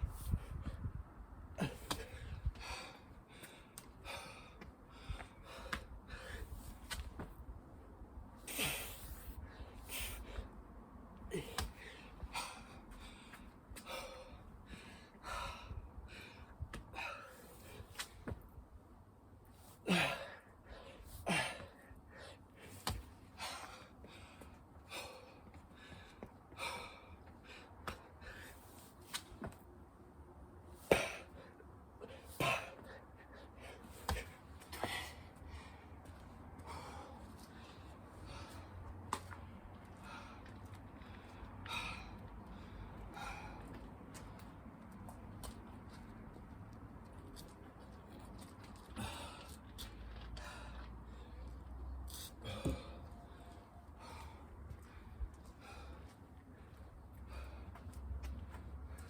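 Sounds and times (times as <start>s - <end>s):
person breathing hard: 30.9s - 38.9s, 48.9s - 59.0s.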